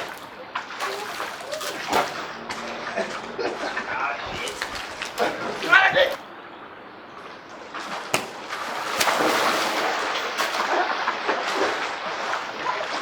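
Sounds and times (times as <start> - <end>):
water splashing in pool: 0.0 - 6.3, 7.7 - 13.0
sharp smacks: 8.1 - 9.5.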